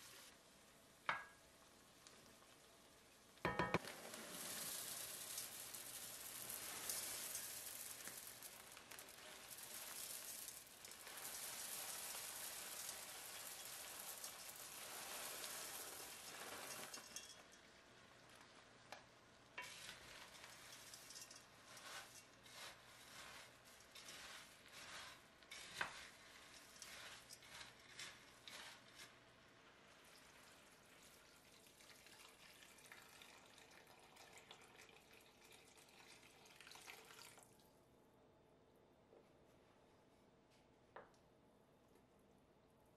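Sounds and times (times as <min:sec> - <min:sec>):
corn sizzling in hot pot: 0:00.0 - 0:37.6
kernels pouring into pot: 0:02.0 - 0:37.6
wooden spoon stirring and scraping: 0:03.5 - 0:31.7.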